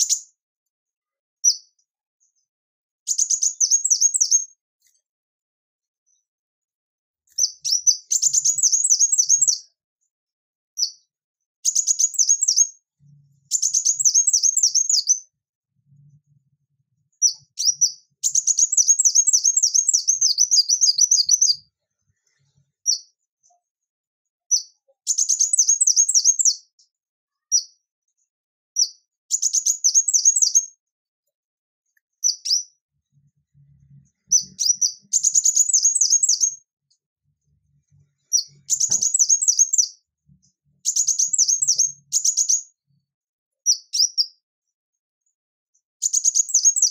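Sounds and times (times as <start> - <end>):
bird singing high sharp notes: 13.5 - 15.2, 34.3 - 36.6, 38.3 - 40.0, 40.9 - 42.7.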